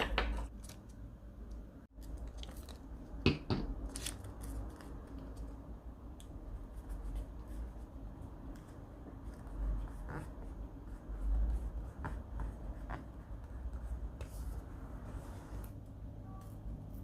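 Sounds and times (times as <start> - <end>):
pen scratching on paper: 9.2 - 15.7.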